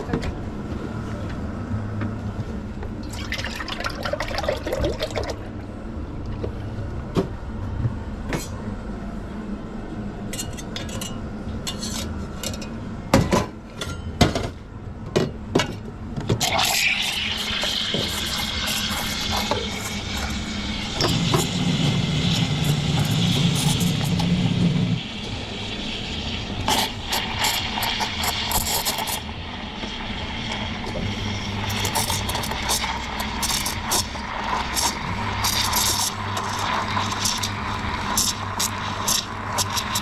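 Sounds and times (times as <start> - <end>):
liquid running into a container: 3.0 - 5.4, 16.4 - 24.4, 30.9 - 40.0.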